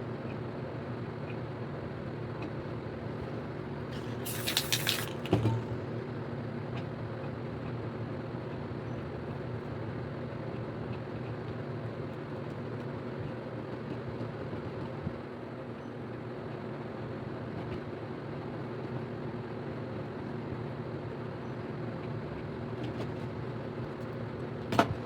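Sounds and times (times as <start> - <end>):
spray paint can hissing: 4.0 - 5.7.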